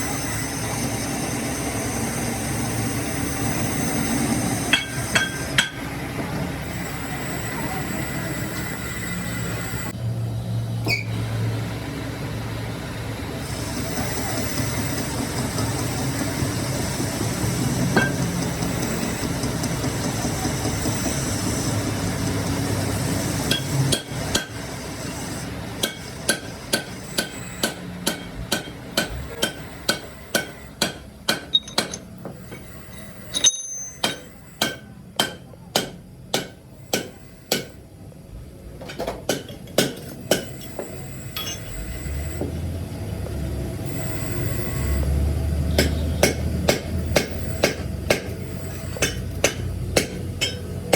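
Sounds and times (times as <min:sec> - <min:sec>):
machine running: 0:00.0 - 0:30.8, 0:40.1 - 0:50.9
hammer striking metal: 0:04.7 - 0:05.9, 0:18.0 - 0:18.3, 0:23.5 - 0:24.6, 0:25.8 - 0:32.7, 0:33.3 - 0:37.8, 0:45.7 - 0:50.9.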